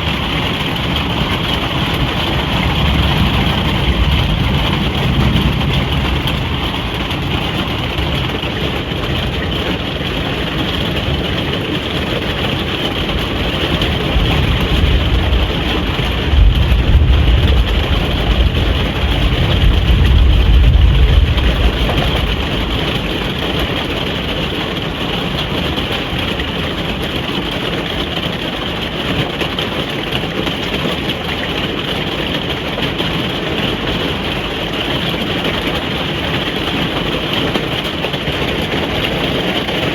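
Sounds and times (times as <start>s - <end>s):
deep rumble: 0.0s - 9.7s, 13.2s - 24.3s
rain drumming on a roof: 0.0s - 39.9s.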